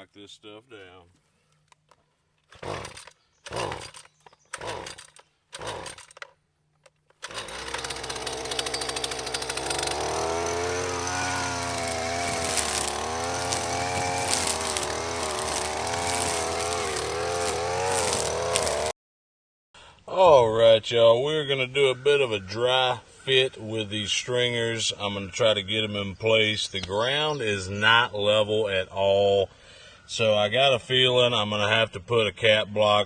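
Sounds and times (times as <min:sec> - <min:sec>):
string trimmer engine running: 0:02.5 - 0:06.3, 0:07.1 - 0:18.9.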